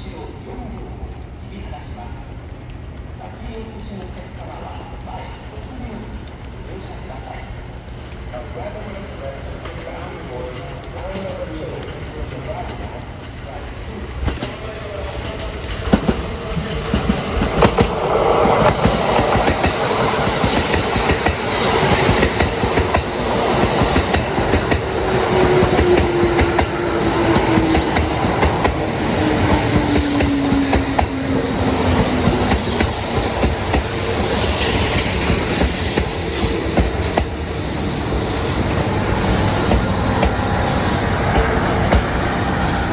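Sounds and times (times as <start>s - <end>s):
train rumble: 0.0s - 42.9s
rising hiss of train: 8.6s - 42.9s
train wheels knocking over rail joints: 9.6s - 42.9s.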